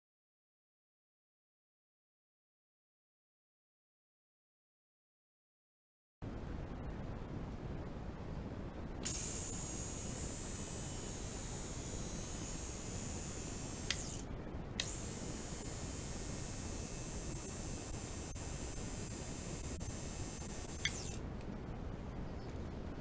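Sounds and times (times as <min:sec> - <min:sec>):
electric shaver humming: 0:09.0 - 0:21.2
shaver switch click: 0:09.1 - 0:14.2.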